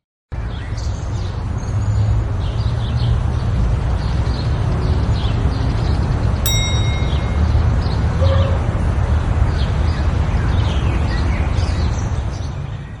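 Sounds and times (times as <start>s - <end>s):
birds chirping: 5.1s - 8.6s
ringing ping: 6.5s - 8.2s.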